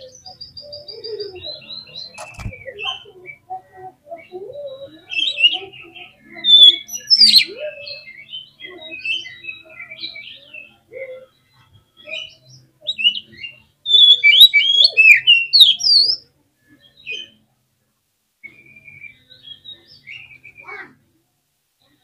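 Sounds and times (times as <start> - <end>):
bird singing whistles and chirps: 0.0 - 10.8, 12.0 - 16.2, 18.4 - 20.8.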